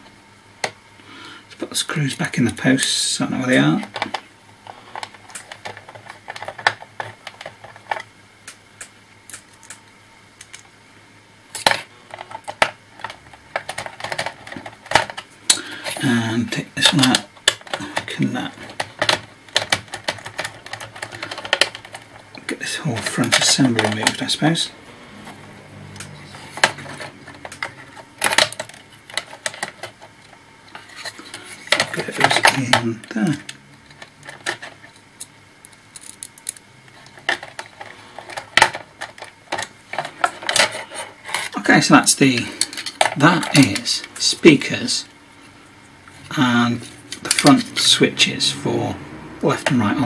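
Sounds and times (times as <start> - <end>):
plastic casing parts clattering: 3.4 - 8.1, 11.5 - 24.6, 26.1 - 45.0, 46.4 - 47.9
laptop plastic parts clicking: 3.8 - 9.8, 11.6 - 15.6, 16.8 - 22.3, 26.0 - 30.4.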